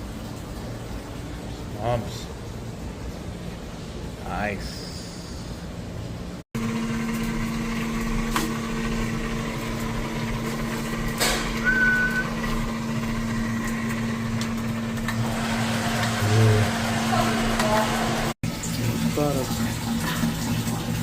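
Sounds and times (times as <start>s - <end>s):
motor humming: 6.6s - 18.4s
brief high squeak: 11.6s - 12.4s.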